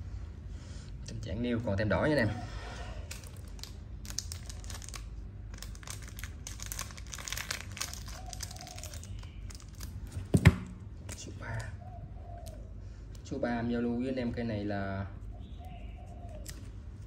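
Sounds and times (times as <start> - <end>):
packaging rustling and crinkling: 3.1 - 10.7.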